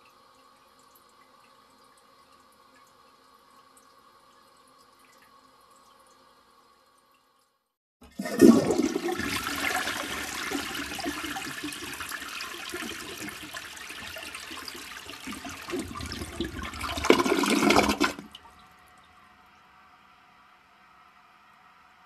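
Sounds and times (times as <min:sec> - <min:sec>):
toilet flushing: 0:08.0 - 0:18.6.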